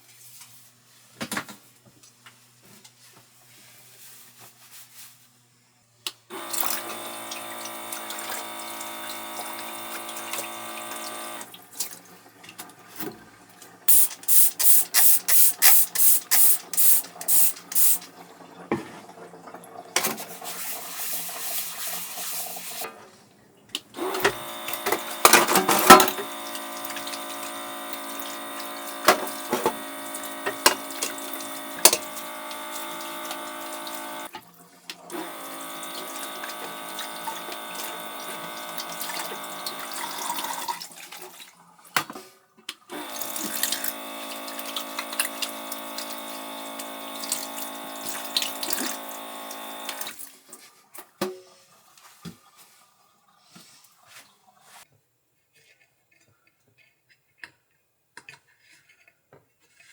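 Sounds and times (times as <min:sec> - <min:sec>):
motor hum: 0:06.3 - 0:11.6, 0:23.9 - 0:34.4, 0:35.1 - 0:40.5, 0:42.9 - 0:50.2
tap water running into sink: 0:06.3 - 0:22.9, 0:23.8 - 0:50.4.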